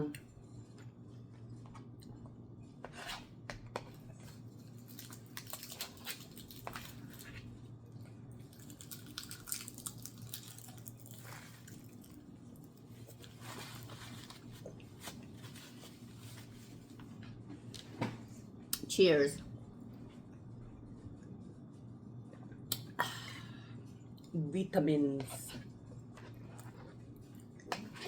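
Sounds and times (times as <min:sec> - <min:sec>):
low steady hum: 0:00.0 - 0:28.0
chewing and biting: 0:08.4 - 0:14.0.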